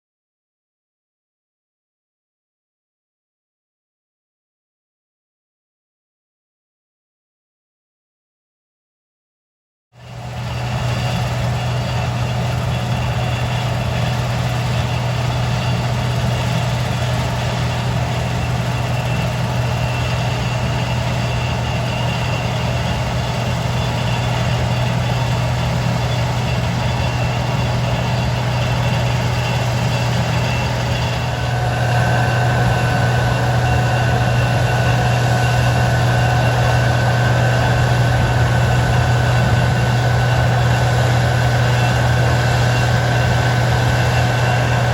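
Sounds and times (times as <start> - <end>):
heavy engine humming: 10.0 - 44.9
high-pitched machinery whine: 10.0 - 44.9.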